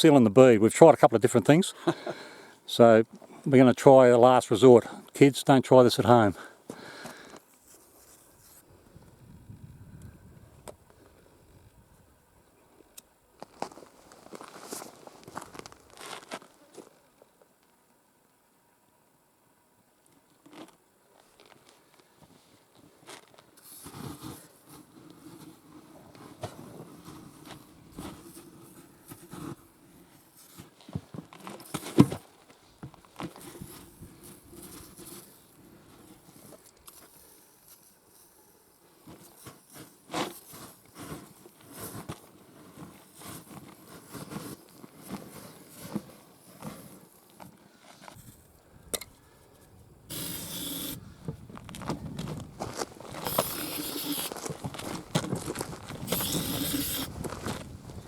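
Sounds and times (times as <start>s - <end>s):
scraping and clicking of tyre handling: 20.4s - 38.4s, 39.0s - 49.1s, 50.1s - 58.0s
aerosol can spraying: 50.1s - 51.0s, 53.3s - 54.3s, 56.1s - 57.1s.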